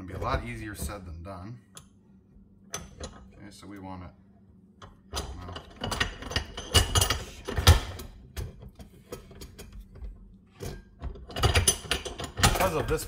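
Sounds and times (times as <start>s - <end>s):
metal parts clicking and clanking: 2.7s - 3.6s, 4.8s - 13.0s.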